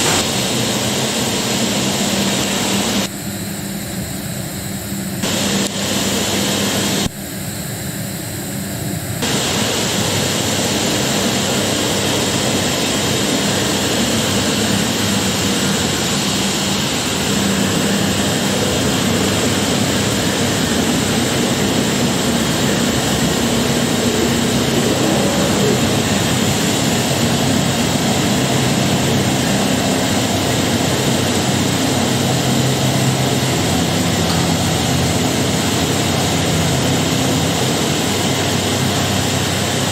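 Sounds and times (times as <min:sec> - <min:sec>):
router machine running: 0:09.2 - 0:39.9.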